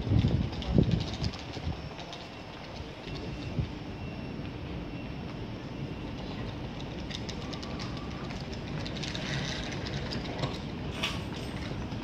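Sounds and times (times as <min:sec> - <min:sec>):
train rumbling: 0:00.0 - 0:03.9.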